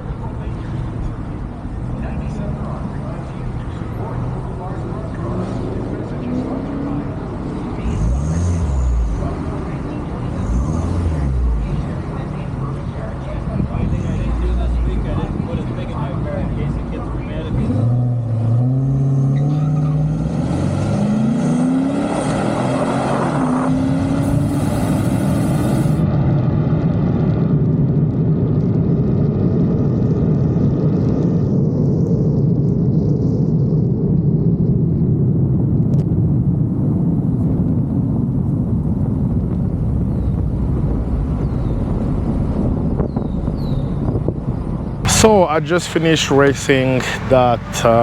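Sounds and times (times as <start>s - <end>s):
car engine accelerating hard: 0.2s - 26.2s, 45.1s - 48.0s.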